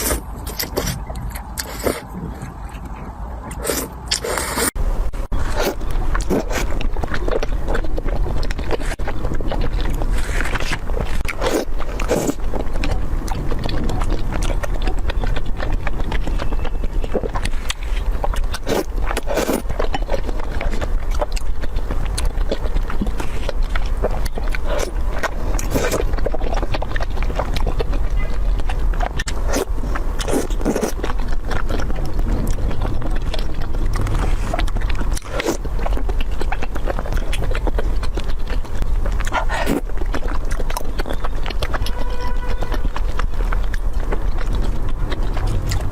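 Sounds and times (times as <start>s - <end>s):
chewing and crunching: 0.0s - 45.9s
steady low hum: 0.0s - 45.9s.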